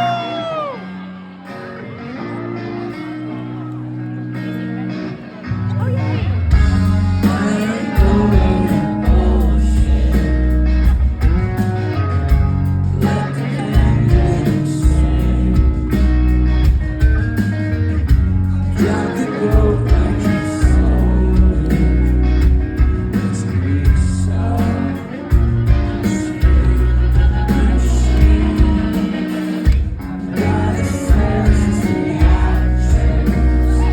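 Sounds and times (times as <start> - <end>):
electric guitars: 0.0 - 33.9
heavy bass: 5.5 - 33.9
drums: 5.7 - 33.9
person singing: 6.6 - 11.6, 12.8 - 16.4, 18.6 - 22.4, 23.1 - 33.9.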